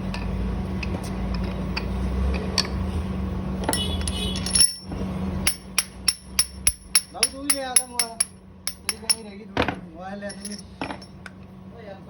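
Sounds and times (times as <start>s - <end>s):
workshop hum: 0.0s - 12.0s
metal parts clinking: 3.6s - 9.4s, 10.2s - 11.3s.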